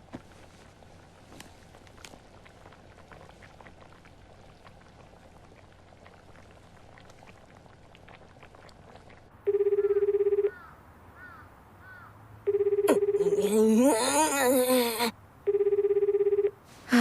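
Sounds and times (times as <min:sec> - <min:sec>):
telephone ringback tone: 0:09.5 - 0:10.6, 0:12.5 - 0:13.5, 0:15.5 - 0:16.6.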